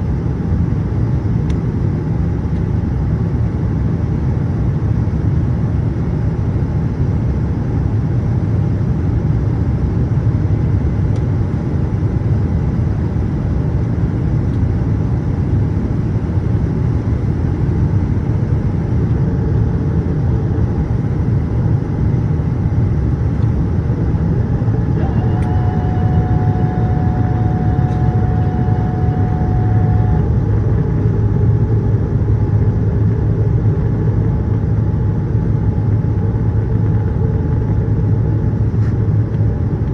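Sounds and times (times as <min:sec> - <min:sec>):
airliner cabin engine rumble: 0:00.0 - 0:39.9
steady high tone: 0:24.9 - 0:31.2.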